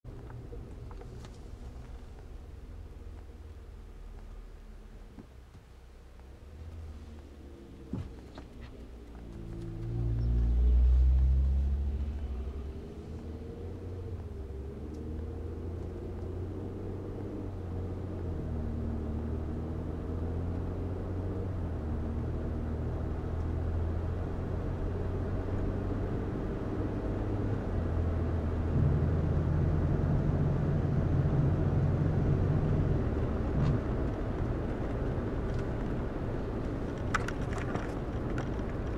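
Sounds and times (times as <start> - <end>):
car engine and road noise: 0.0 - 38.9
loud low hum: 27.7 - 33.4.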